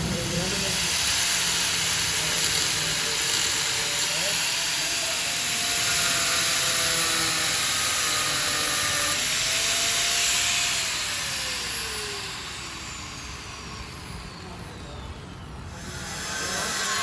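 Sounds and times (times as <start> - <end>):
power tool whining: 0.0 - 17.0.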